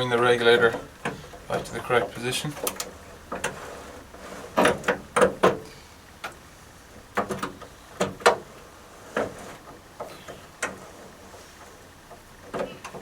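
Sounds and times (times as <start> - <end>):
metal window regulator clunking: 2.5 - 5.7.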